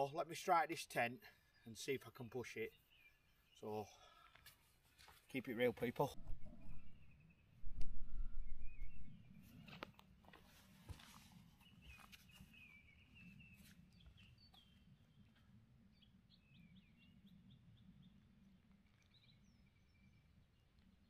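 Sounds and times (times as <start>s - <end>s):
birdsong warbling: 11.6s - 21.0s.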